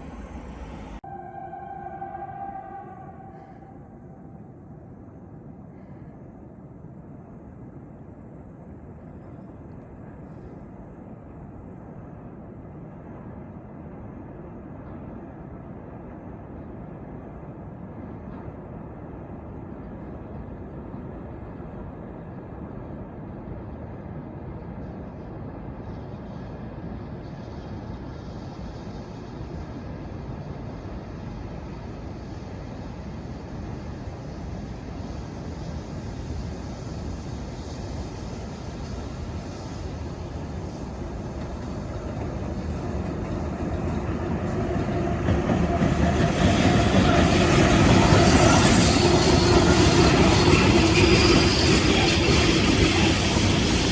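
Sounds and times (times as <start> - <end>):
train hiss: 0.0 - 7.1, 24.8 - 53.9
freight train rumbling: 0.0 - 53.9.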